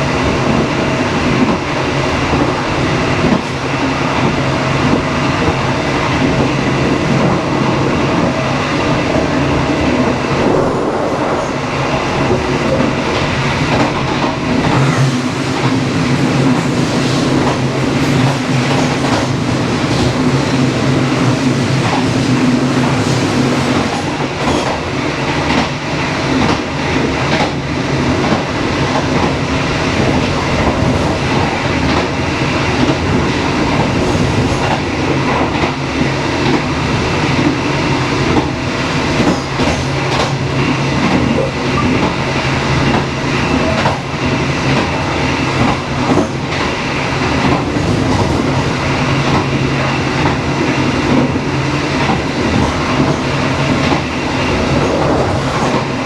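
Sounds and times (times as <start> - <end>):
train rumble and hum: 0.0 - 56.0
train wheels clicking over rail joints: 11.8 - 56.0.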